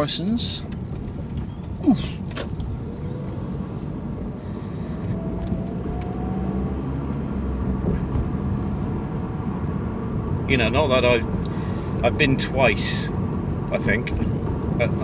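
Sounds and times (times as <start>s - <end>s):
tyre and engine rumble in car: 0.0s - 15.0s
faint rising tone: 2.5s - 7.8s.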